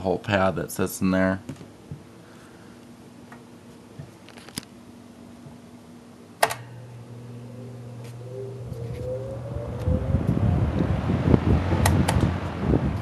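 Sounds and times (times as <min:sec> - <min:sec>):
fan motor humming: 0:00.0 - 0:13.0
switch click: 0:06.4 - 0:06.7.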